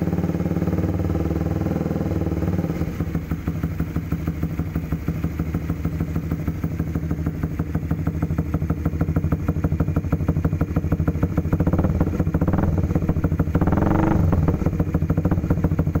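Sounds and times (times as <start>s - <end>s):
engine running and revving: 0.0s - 4.2s, 9.4s - 16.0s.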